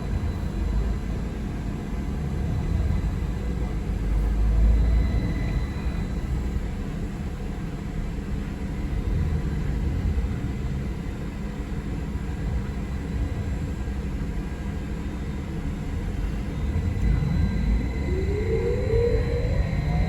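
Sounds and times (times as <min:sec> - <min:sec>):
transit vehicle rumble: 0:00.0 - 0:20.0
vehicle whine rising: 0:15.8 - 0:20.0.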